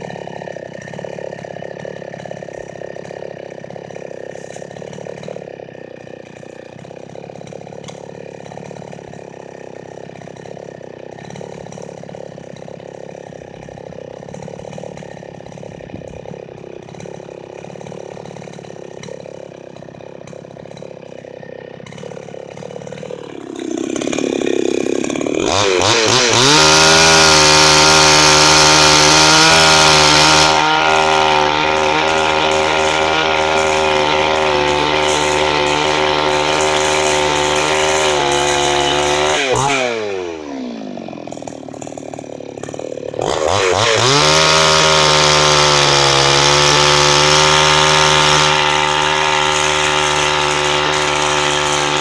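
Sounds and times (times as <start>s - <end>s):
chainsaw revving: 0.0s - 52.0s.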